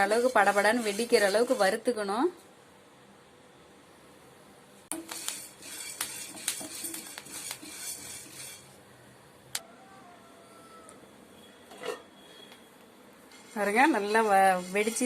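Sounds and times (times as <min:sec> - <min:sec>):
seeds crackling in a metal pan: 0:00.0 - 0:02.0, 0:04.9 - 0:08.8, 0:13.2 - 0:15.0.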